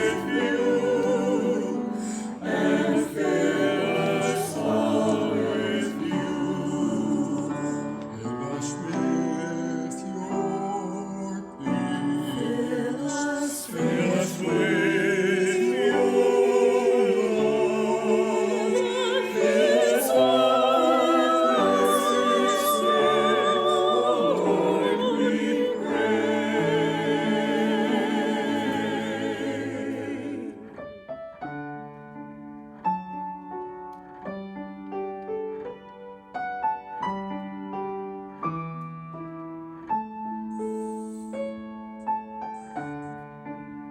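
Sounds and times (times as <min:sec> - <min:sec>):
piano accompaniment: 0:00.0 - 0:43.9
singing with vibrato: 0:10.4 - 0:30.5.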